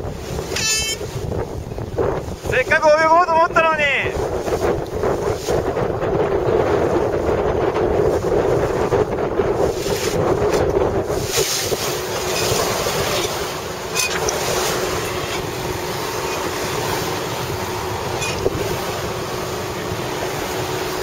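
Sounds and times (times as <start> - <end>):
strong wind: 0.0 - 21.0
water noise: 0.0 - 21.0.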